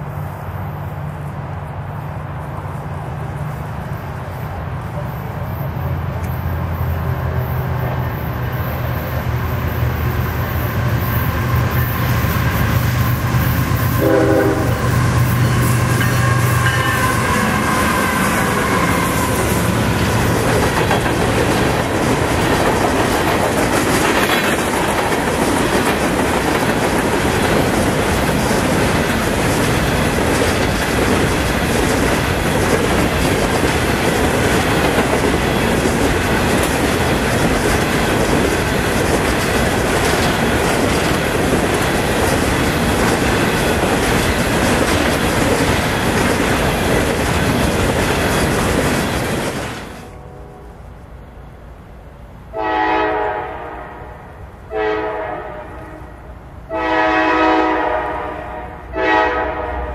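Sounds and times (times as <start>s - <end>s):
freight cars rumbling: 0.0s - 52.5s
diesel locomotive engines droning: 0.0s - 59.9s
train horn: 13.7s - 20.1s, 50.0s - 51.0s, 52.5s - 59.9s.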